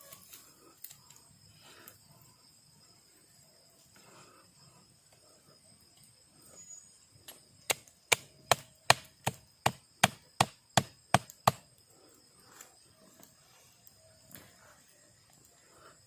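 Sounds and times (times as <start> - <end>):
insects trilling: 0.0 - 16.0
chopping wood: 7.7 - 11.6.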